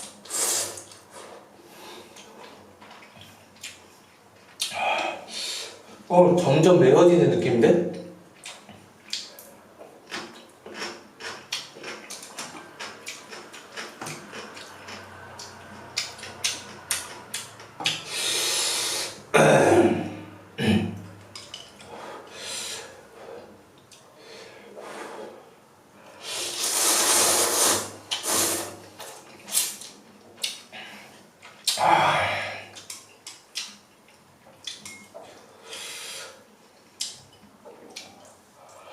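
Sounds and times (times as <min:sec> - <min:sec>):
wet chewing: 0:10.1 - 0:17.7
noodle slurping: 0:26.2 - 0:28.8.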